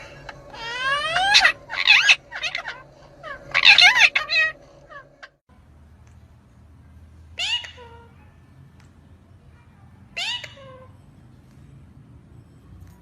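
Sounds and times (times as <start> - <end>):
parrot squawking and chirping: 0.0 - 5.4, 7.4 - 8.1, 10.2 - 10.9.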